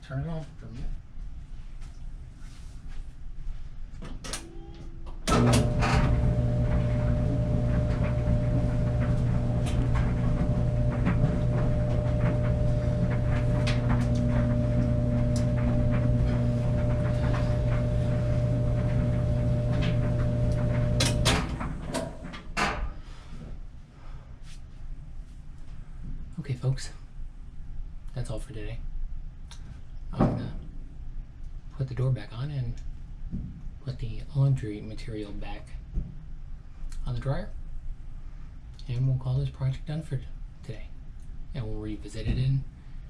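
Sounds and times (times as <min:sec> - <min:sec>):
clothes dryer running: 0:04.3 - 0:23.3.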